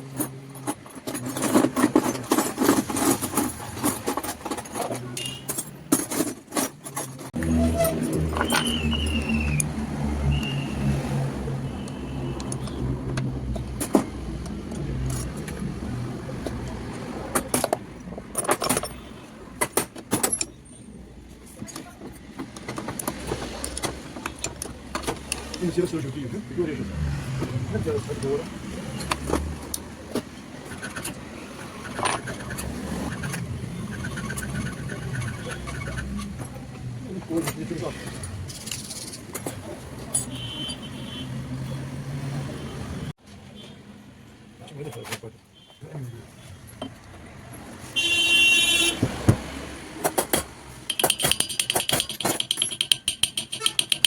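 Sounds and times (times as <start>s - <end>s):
sharp metallic clicks: 50.0s - 54.0s
sewing machine ticking: 50.9s - 54.0s.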